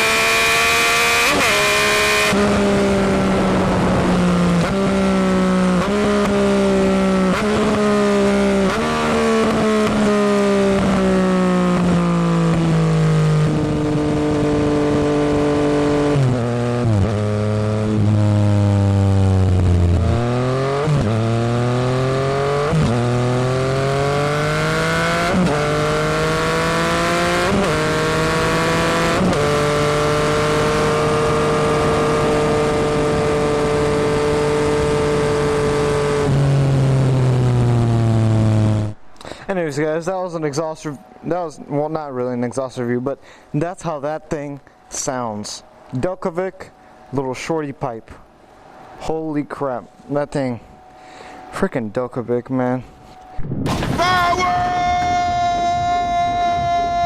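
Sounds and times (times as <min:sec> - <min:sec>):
motorcycle engine shifting gears: 0:00.0 - 0:39.0.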